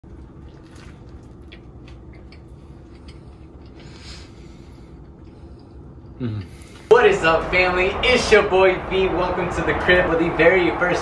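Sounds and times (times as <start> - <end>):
steady low hum: 0.0 - 11.0
person chewing crunchy food: 0.1 - 4.4.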